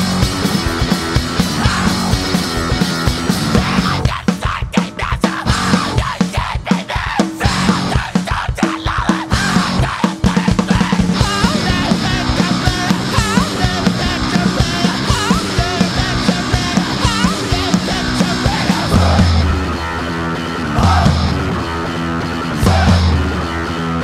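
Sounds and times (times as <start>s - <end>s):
bending guitar lead line: 0.0s - 4.1s, 9.3s - 24.0s
heavy low notes: 0.0s - 4.5s, 9.3s - 24.0s
distorted guitars: 0.0s - 24.0s
fast dense drums: 0.0s - 24.0s
punk rock band playing: 0.0s - 24.0s.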